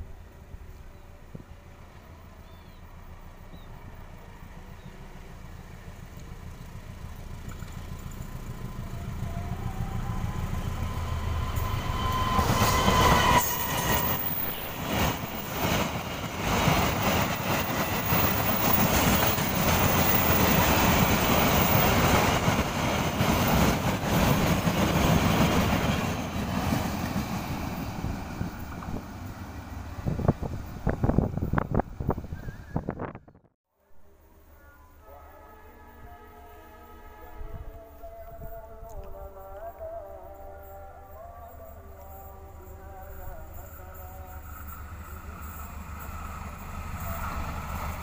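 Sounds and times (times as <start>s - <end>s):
locomotive engine rumble: 0.0s - 33.3s
wheels clicking over rail joints: 7.2s - 8.7s.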